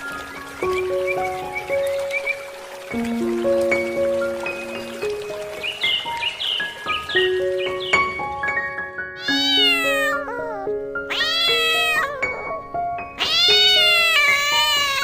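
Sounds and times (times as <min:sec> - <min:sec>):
background music: 0:00.0 - 0:15.0
cat meowing: 0:09.2 - 0:15.0.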